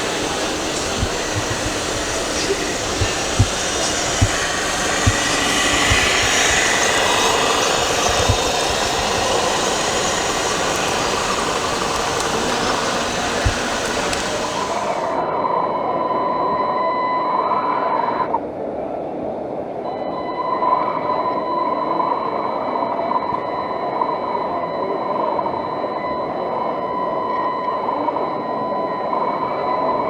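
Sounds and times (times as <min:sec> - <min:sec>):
noisy background din: 0:00.0 - 0:15.2.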